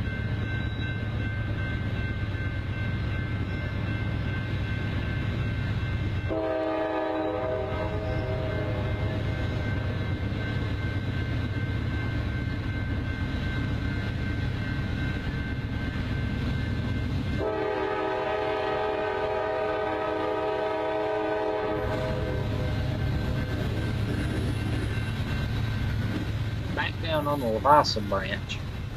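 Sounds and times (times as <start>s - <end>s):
multi-chime train horn: 0.0s - 10.7s, 16.6s - 23.6s
locomotive engine rumble: 0.2s - 28.9s.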